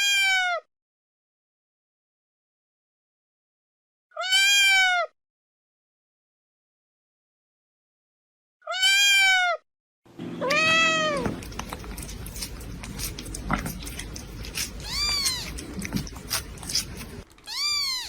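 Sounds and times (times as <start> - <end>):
cat meowing: 0.0 - 0.7, 4.2 - 5.1, 8.7 - 9.6, 10.4 - 11.4, 14.8 - 15.8, 17.4 - 18.0.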